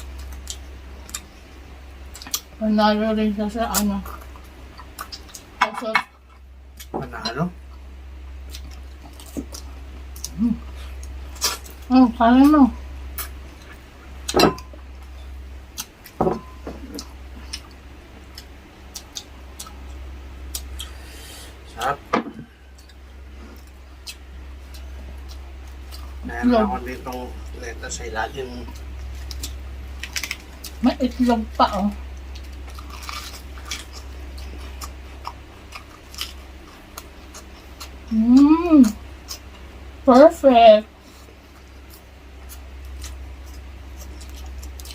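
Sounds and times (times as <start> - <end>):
person chewing wetly: 0.0 - 2.5, 4.1 - 5.6, 7.7 - 11.8, 13.1 - 21.1, 22.7 - 26.3, 28.4 - 30.8, 31.9 - 39.7, 41.2 - 44.9
steady low hum: 0.0 - 44.9.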